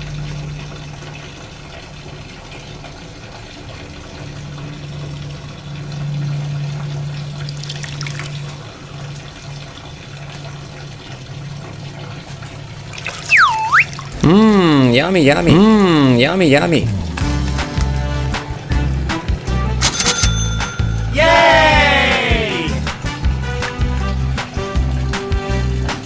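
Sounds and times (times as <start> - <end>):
water trickling and pouring: 0.0 - 18.2.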